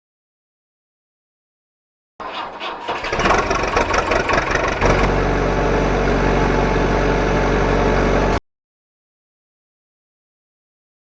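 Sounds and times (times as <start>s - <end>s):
engine starting and idling: 2.2s - 6.8s.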